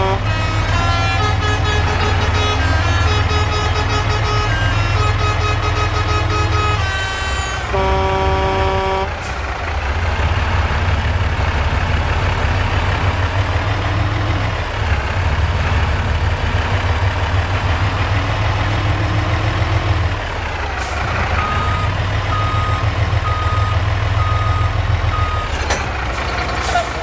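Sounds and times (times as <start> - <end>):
truck engine rumbling: 0.0 - 27.0
reversing alarm beeping: 20.8 - 25.8.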